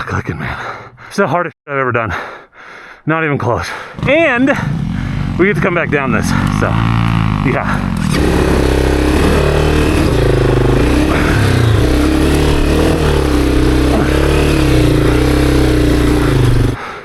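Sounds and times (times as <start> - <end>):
motorcycle engine at low revs: 3.8 - 16.8.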